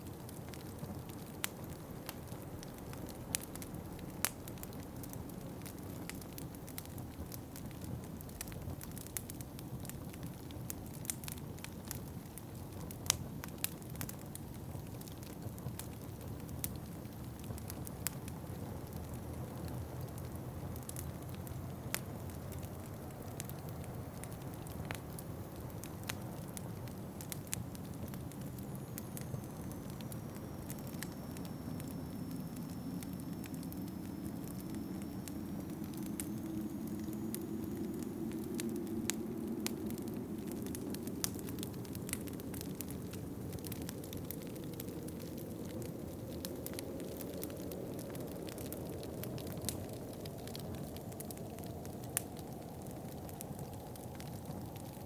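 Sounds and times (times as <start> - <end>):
low rush of wind: 0.0 - 55.0
wood fire crackling and popping: 0.0 - 55.0.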